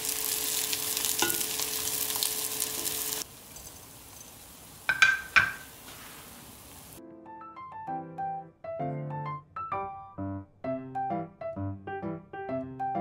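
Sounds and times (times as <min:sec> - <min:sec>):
pancakes sizzling in oil: 0:00.0 - 0:07.0
spatula clinking: 0:01.0 - 0:01.8, 0:03.5 - 0:05.8.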